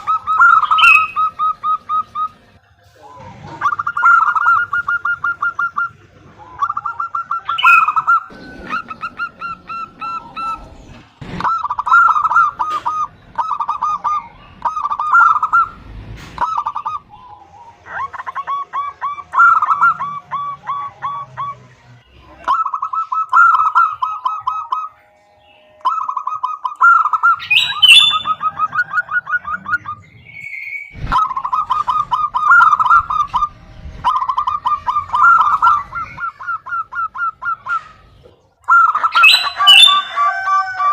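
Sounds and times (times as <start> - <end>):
dove calling in staccato bursts: 0.0 - 40.9.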